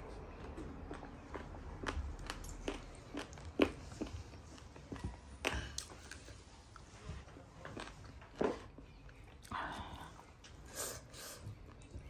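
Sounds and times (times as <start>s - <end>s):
person chewing food: 0.1s - 7.0s, 7.6s - 10.0s.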